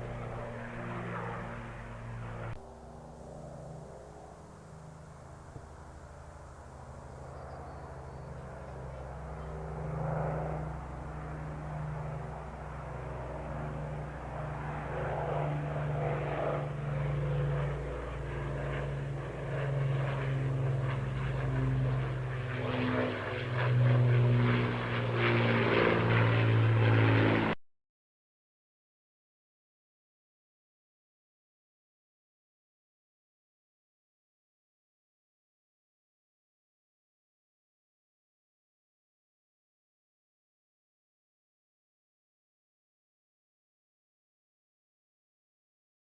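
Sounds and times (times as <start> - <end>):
propeller plane engines droning: 0.0 - 27.6.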